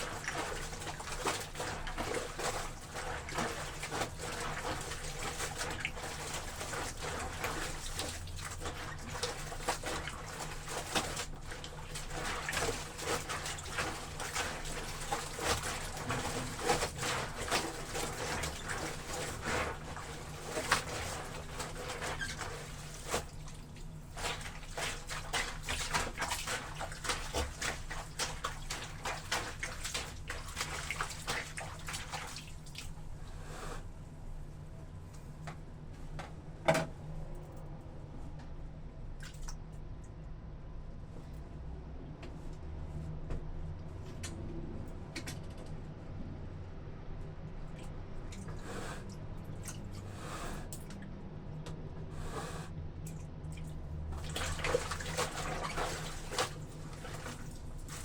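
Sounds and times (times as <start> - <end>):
feet squelching wet clothes in water: 0.0 - 33.2, 39.2 - 39.7, 47.4 - 58.0.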